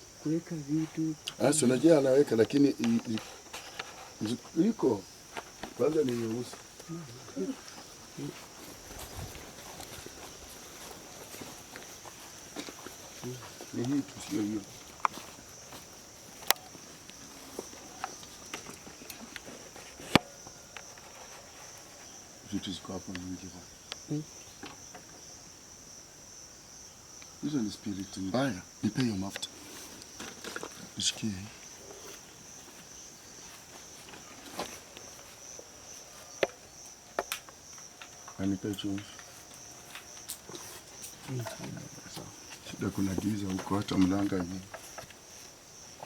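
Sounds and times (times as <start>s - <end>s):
crickets chirring: 0.0s - 46.0s
small clicks and knocks: 36.4s - 42.3s.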